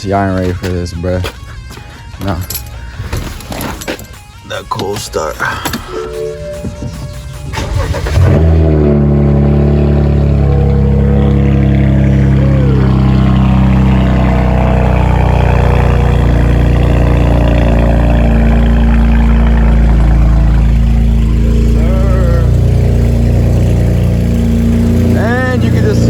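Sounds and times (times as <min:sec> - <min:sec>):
car engine idling loud: 0:05.4 - 0:26.0.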